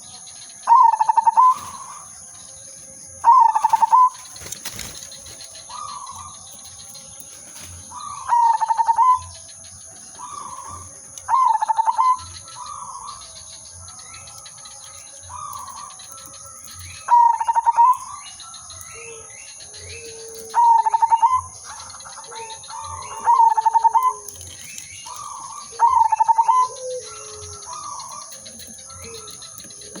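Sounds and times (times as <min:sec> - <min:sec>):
dove trilled song: 0:00.0 - 0:30.0
quiet dove coos: 0:19.0 - 0:30.0.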